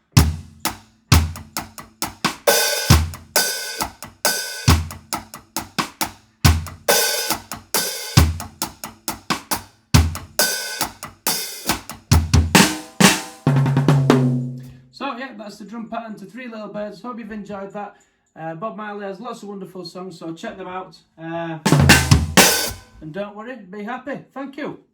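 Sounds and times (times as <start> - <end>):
drum kit playing reggae groove: 0.0 - 14.7, 21.7 - 23.0.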